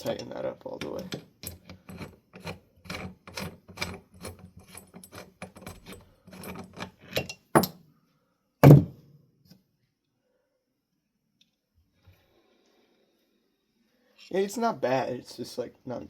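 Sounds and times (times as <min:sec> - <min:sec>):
small metal hardware clinking: 0:00.0 - 0:07.8
loud knocks: 0:08.6 - 0:08.9.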